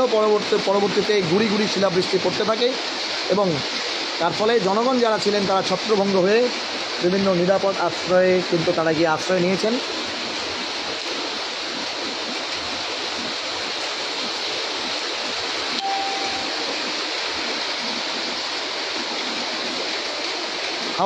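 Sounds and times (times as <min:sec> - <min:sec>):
heavy rain pouring: 0:00.0 - 0:21.0
short faint beep: 0:15.8 - 0:16.8.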